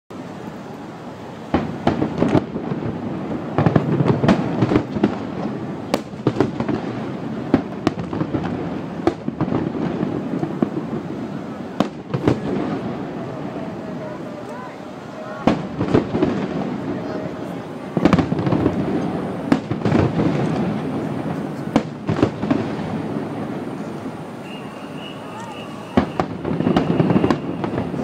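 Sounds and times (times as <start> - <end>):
firework shells bursting: 15.4 - 28.0.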